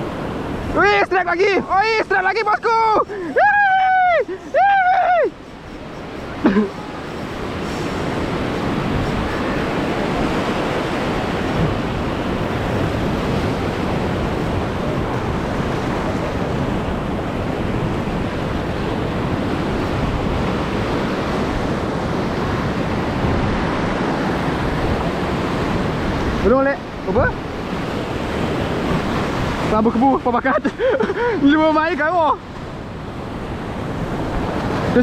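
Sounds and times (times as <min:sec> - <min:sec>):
surf washing over reef: 0:00.0 - 0:35.0
wind noise on microphone: 0:03.4 - 0:30.1.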